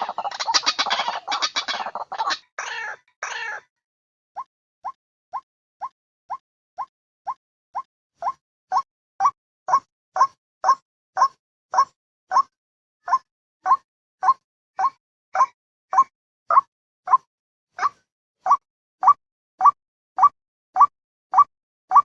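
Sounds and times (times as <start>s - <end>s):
waterhen calling: 0.0s - 3.6s.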